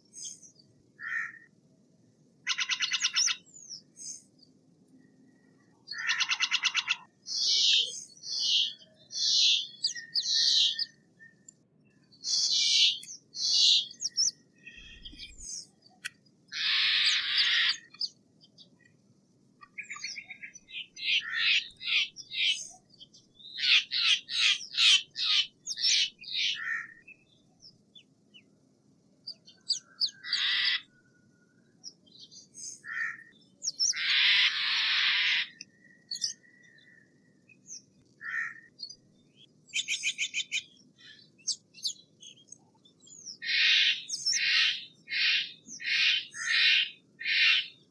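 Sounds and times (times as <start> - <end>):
jay rasping calls: 16.5 - 17.9, 33.9 - 35.6.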